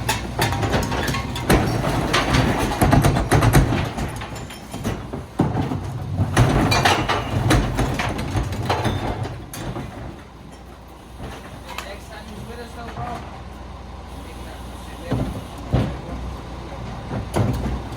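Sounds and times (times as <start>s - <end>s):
metallic bangs and clatter: 0.0s - 13.3s
garbage truck engine under load: 0.0s - 17.9s.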